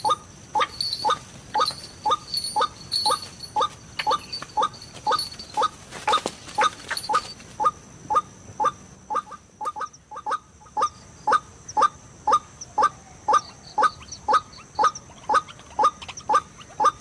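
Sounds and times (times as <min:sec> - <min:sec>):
bird repeating short kwak calls: 0:06.6 - 0:17.0.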